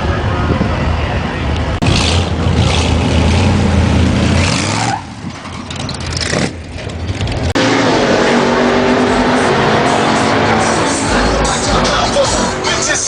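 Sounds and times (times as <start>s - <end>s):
vehicle engine revving: 1.8s - 13.0s
music: 10.7s - 13.0s.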